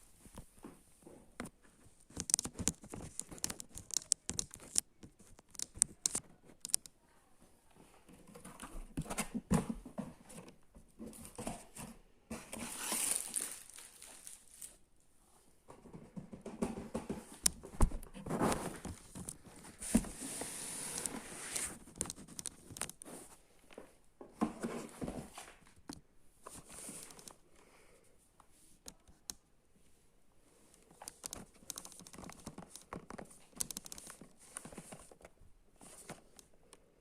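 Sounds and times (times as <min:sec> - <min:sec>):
scattered clicks and knocks: 0:01.4 - 0:06.9
packaging crinkling and tearing: 0:02.2 - 0:06.2, 0:12.6 - 0:14.8
packaging rustling: 0:12.5 - 0:14.8.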